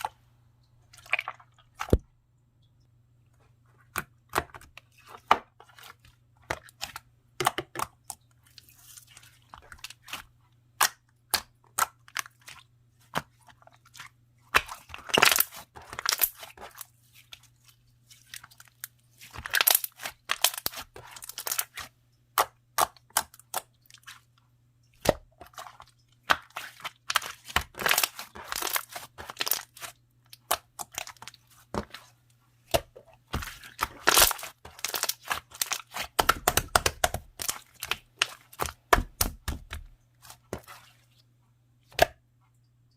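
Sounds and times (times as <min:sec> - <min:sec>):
slime crackling: 0:26.3 - 0:32.0, 0:32.7 - 0:40.8.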